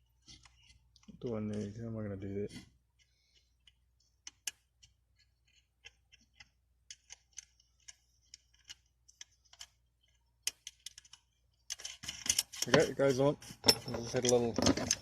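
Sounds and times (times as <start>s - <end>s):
small clicks and taps of bolt: 3.0s - 12.6s.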